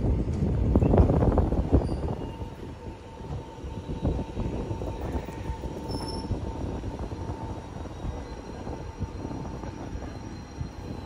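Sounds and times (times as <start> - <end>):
train wheels rumbling on rail: 0.0 - 11.0
thin steady squeal: 1.7 - 11.0.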